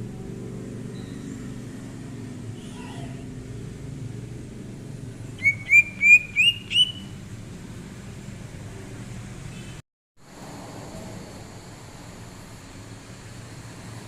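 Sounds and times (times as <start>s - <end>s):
bird whistling upward notes: 5.4s - 7.2s.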